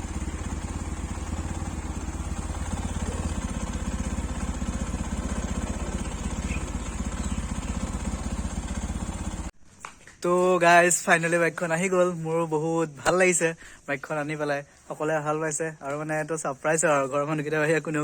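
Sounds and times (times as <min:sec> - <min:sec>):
single-cylinder engine running: 0:00.0 - 0:09.5.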